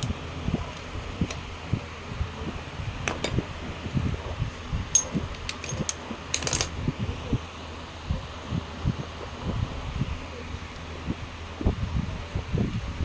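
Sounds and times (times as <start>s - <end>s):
metal tools clinking: 4.9s - 6.7s.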